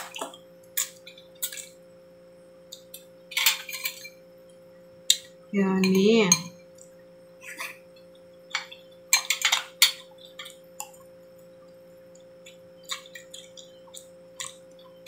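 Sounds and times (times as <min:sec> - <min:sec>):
steady hum: 0:00.0 - 0:15.0
person chewing food: 0:12.1 - 0:15.0.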